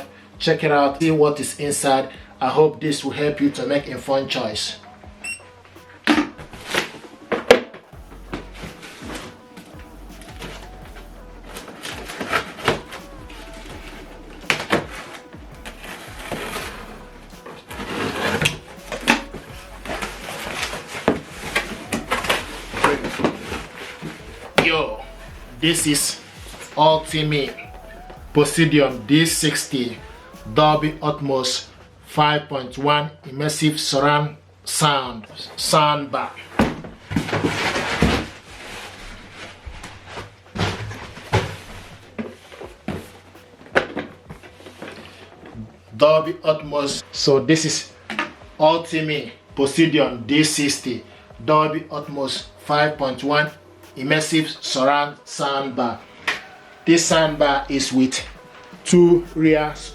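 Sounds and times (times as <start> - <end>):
rubbing and shuffling: 5.6 - 31.9, 36.4 - 47.0.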